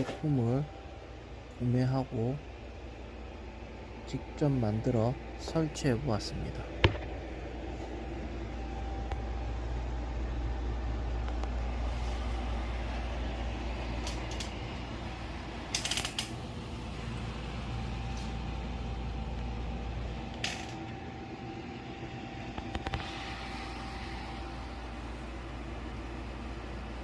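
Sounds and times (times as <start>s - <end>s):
air conditioner humming: 0.0s - 27.0s
sharp clicks and knocks: 15.7s - 16.4s.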